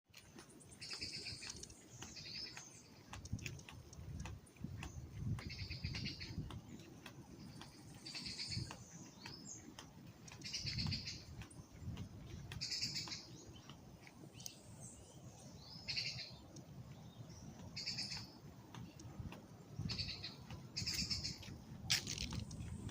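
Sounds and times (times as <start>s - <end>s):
light clicks: 0.2s - 14.6s, 17.6s - 22.9s
bird calling: 5.4s - 11.8s, 12.5s - 13.7s, 15.5s - 16.5s, 17.1s - 19.0s, 19.8s - 21.4s.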